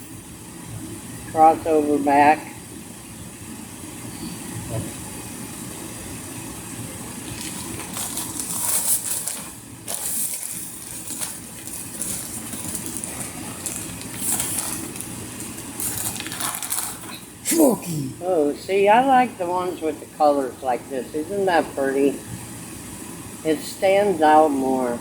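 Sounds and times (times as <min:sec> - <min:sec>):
steady low hum: 0:00.0 - 0:25.0
plastic packaging crinkling: 0:07.2 - 0:17.4.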